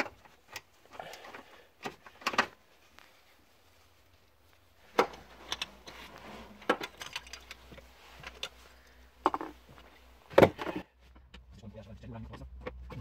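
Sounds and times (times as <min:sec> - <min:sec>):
small parts and tools clinking: 0:04.9 - 0:09.6.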